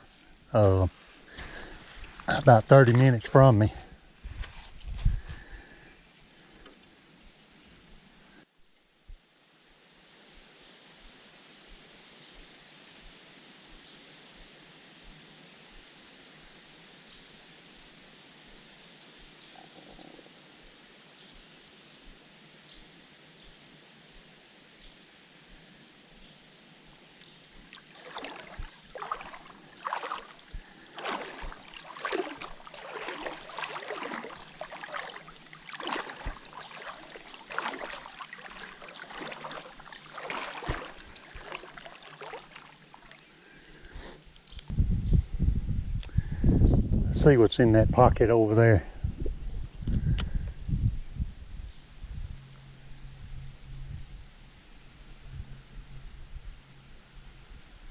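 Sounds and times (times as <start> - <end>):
water splashing and sloshing: 0.0 - 5.8, 27.0 - 43.9
crickets trilling: 0.0 - 8.4, 9.8 - 57.9.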